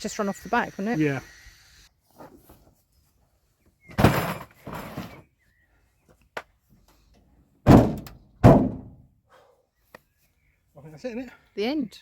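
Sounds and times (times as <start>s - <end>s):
heavy thuds: 7.7s - 9.1s.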